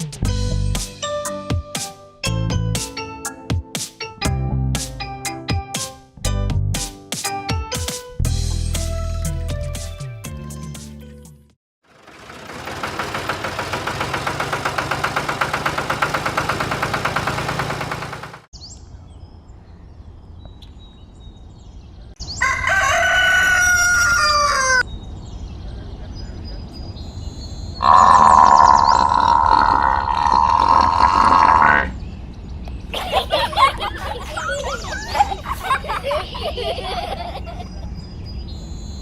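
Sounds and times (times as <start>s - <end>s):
rooster crowing: 22.4s - 24.8s.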